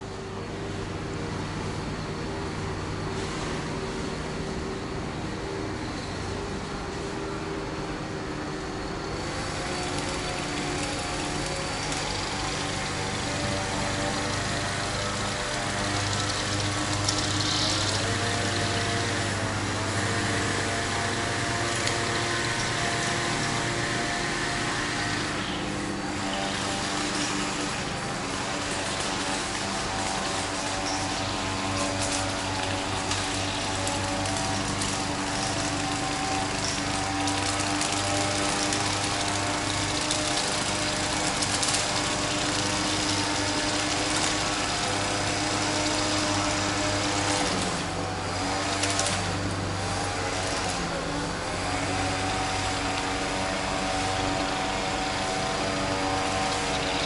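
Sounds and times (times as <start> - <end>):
loud mechanical drone: 0.0 - 57.0.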